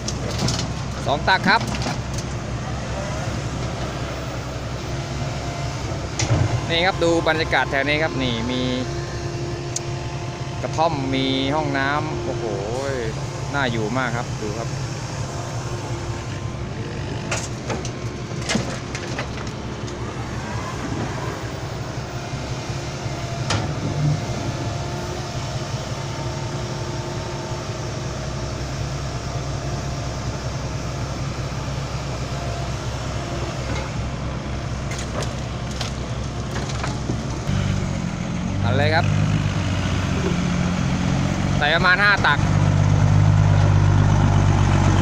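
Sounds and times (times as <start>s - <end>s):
diesel engine running: 0.0s - 45.0s
sharp knocks and clunks: 17.3s - 19.6s.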